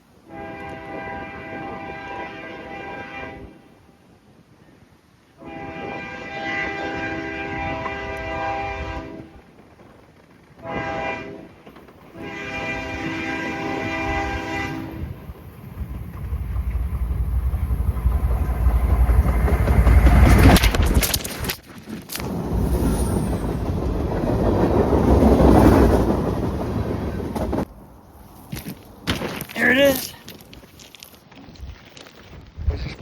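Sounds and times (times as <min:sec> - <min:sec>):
train horn blasts: 0:00.2 - 0:03.8, 0:05.4 - 0:09.4, 0:10.6 - 0:15.2
train rumble and wheel clatter: 0:05.3 - 0:29.0.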